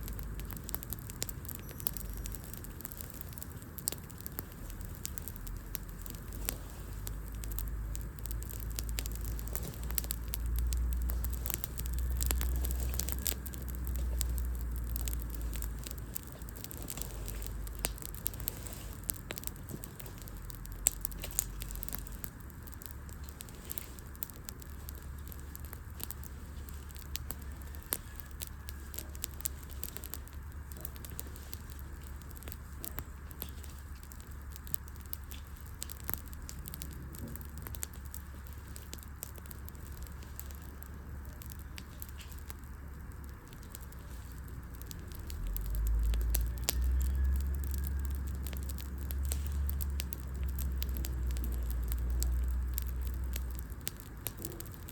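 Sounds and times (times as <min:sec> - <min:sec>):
wood fire crackling and popping: 0:00.0 - 0:54.9.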